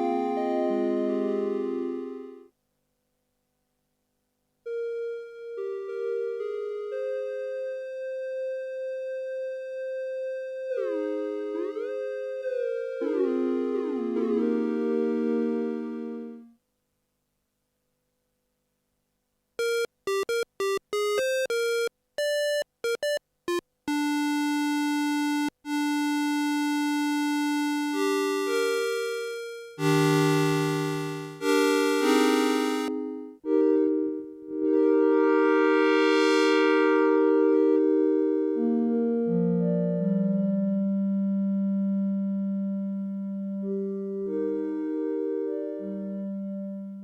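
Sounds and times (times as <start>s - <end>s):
synthesizer notes and chords: 0.0s - 2.5s, 10.4s - 16.5s, 19.6s - 47.0s.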